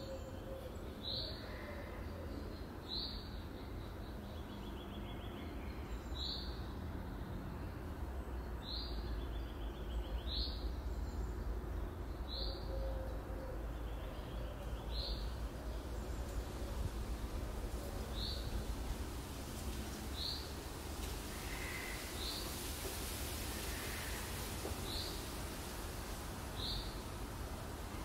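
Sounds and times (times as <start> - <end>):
low outdoor rumble: 13.1 - 28.0.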